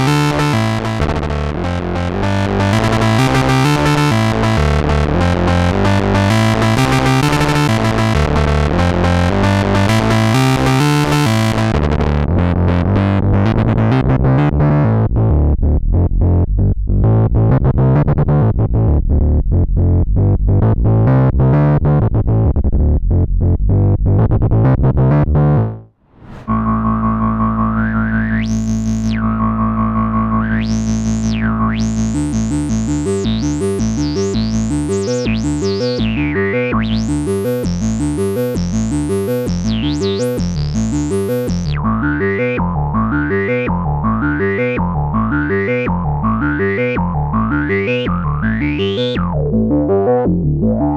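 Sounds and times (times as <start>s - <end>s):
synthesizer sequenced pattern: 0.0s - 11.9s, 26.5s - 50.9s
synthesizer low note filter sweep: 0.0s - 15.8s, 26.1s - 50.9s.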